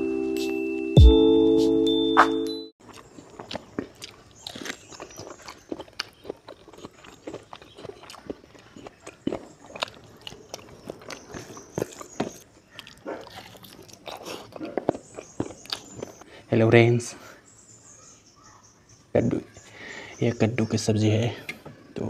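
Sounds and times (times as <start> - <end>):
chewing and lip smacking: 2.8 - 16.2.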